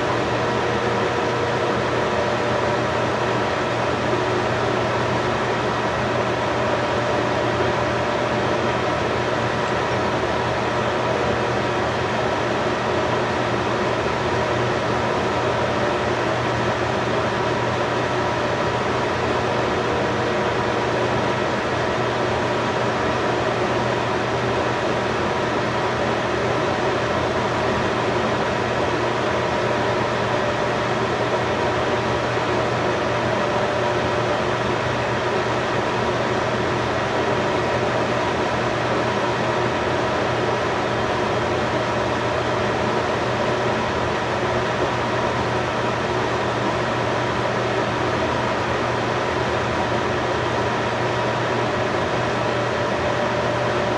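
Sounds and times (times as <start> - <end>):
steady machine hum: 0.0 - 53.9.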